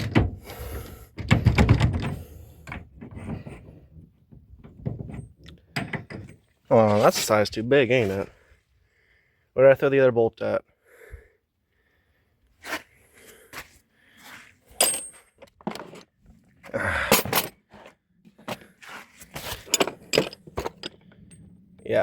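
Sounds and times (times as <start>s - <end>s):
metal tools clinking: 5.1s - 6.5s, 14.7s - 16.0s, 17.0s - 17.6s, 19.4s - 22.0s.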